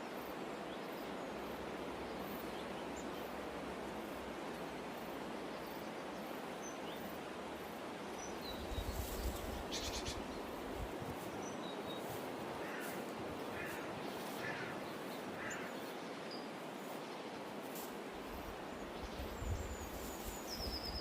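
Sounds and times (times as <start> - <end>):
background hiss: 0.0 - 21.0
soft bird calls: 8.2 - 17.9
wind rumble on microphone: 18.4 - 21.0.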